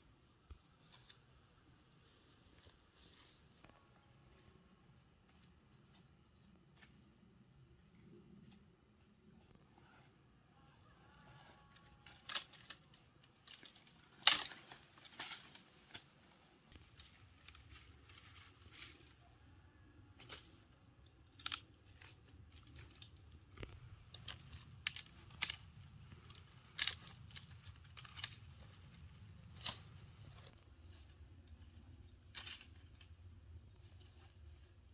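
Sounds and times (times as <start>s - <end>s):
faint low hum: 0.0s - 34.9s
dry wood crackling and snapping: 11.6s - 19.2s, 20.2s - 30.7s, 32.2s - 34.4s.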